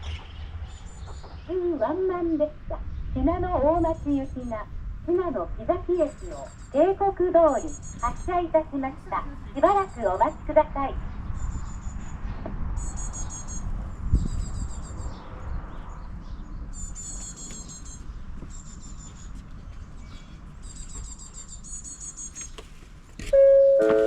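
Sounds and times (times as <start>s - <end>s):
small birds singing trills: 0.0s - 4.6s, 5.9s - 8.5s, 9.6s - 22.8s
loud ringing multi-pitched tone: 23.4s - 24.0s.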